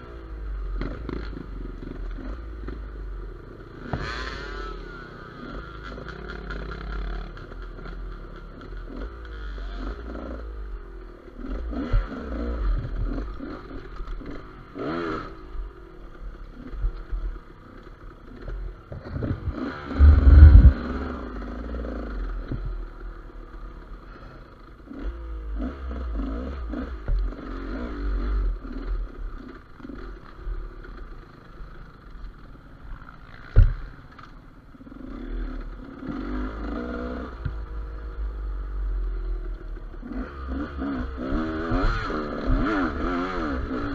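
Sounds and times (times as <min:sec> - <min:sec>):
clatter and scraping from bike: 0:00.0 - 0:10.5, 0:11.3 - 0:38.3
motorcycle engine revving: 0:00.0 - 0:32.0, 0:32.8 - 0:43.9
heavy low thump: 0:18.9 - 0:21.0.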